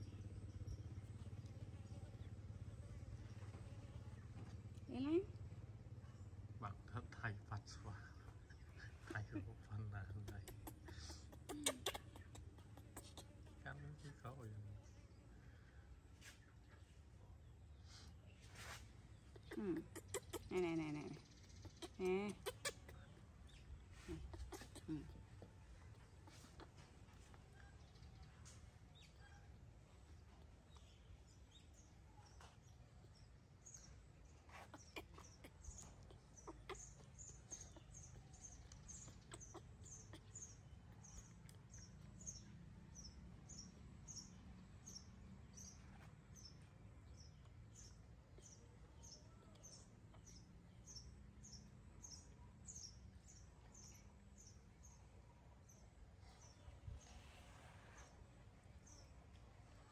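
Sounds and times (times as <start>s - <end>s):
small bird chirping: 0.0s - 59.9s.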